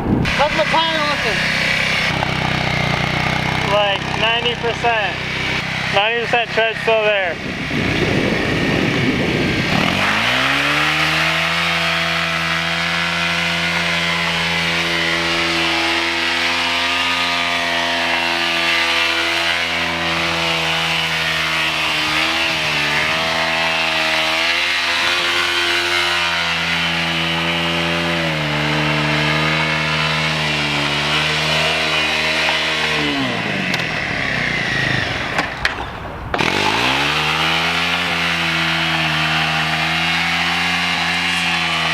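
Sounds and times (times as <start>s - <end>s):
motorcycle engine at high revs: 0.0s - 41.9s.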